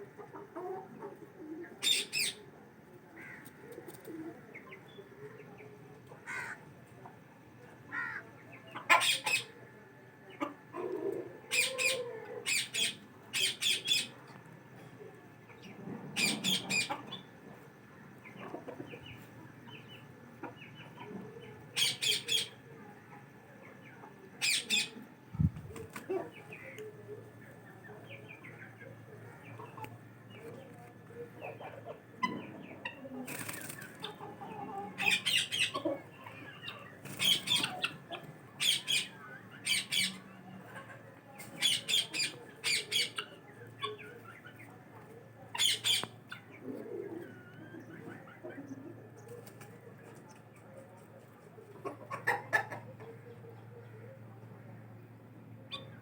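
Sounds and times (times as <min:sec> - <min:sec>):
birds flapping wings: 0:33.3 - 0:34.0.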